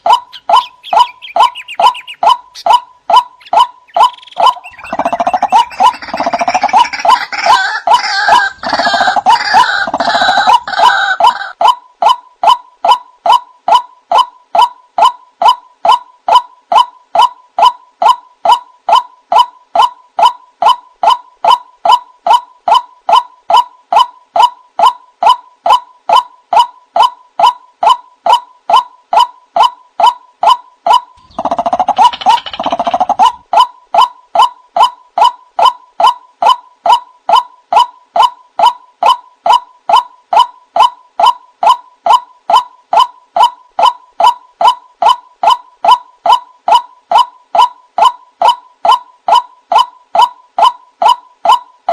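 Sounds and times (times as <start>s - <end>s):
harsh louder bird calls: 0.0s - 11.6s, 30.0s - 35.3s
waterhen repeated call: 0.0s - 51.7s.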